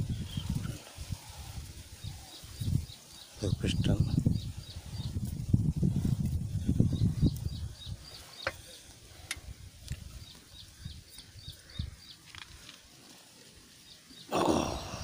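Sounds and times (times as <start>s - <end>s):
bird chirping: 1.9s - 5.3s, 6.6s - 9.4s, 10.1s - 12.5s.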